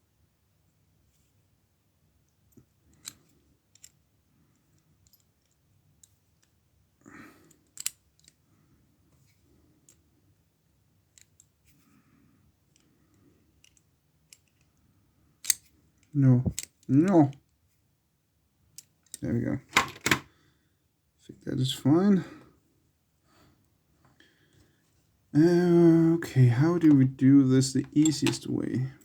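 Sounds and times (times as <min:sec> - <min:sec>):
small metallic clicks and taps: 0:07.5 - 0:08.4.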